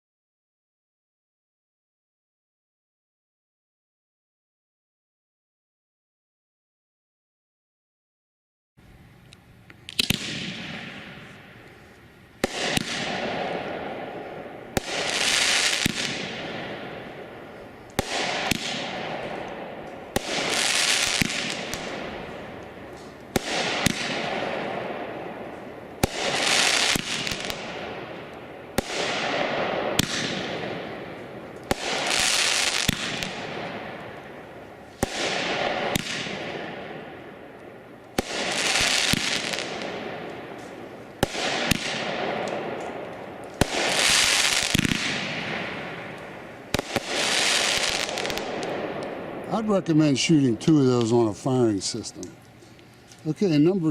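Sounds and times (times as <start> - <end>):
firework shots banging and hissing: 9.9 - 53.3.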